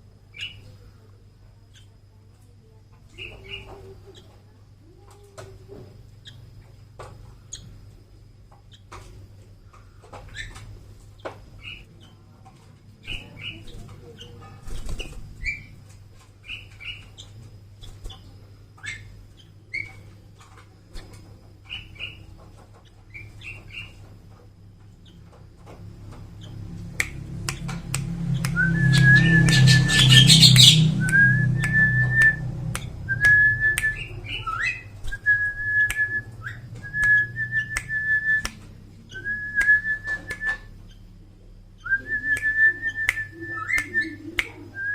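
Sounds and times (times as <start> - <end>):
bird chirping: 3.1 - 4.3, 16.4 - 24.1, 26.0 - 44.9
steady whistled note: 28.4 - 32.5.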